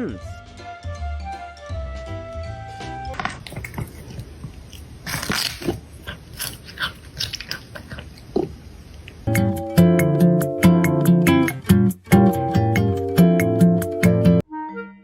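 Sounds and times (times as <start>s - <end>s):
music: 0.0s - 3.2s, 9.3s - 15.0s
cat chewing with crunches: 3.3s - 9.1s
guitar music: 9.3s - 14.9s.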